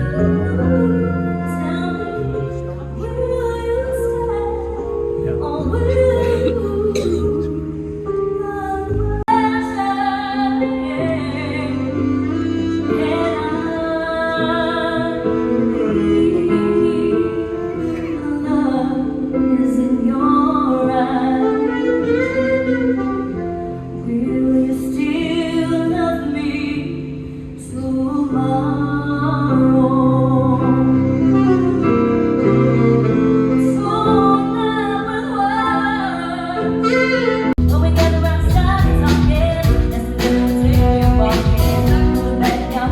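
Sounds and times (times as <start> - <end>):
instrumental backing: 0.0 - 42.9
woman singing: 0.0 - 42.9.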